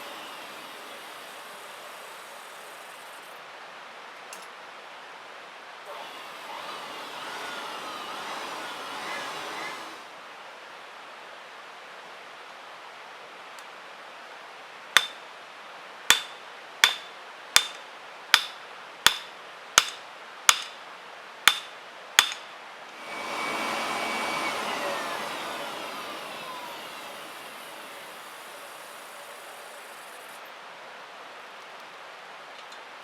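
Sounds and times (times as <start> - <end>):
hissing rush with falling whistle: 6.9 - 10.1, 23.0 - 30.4
hammer blows on metal: 15.0 - 15.2, 16.1 - 17.8, 18.4 - 20.8, 21.5 - 25.0.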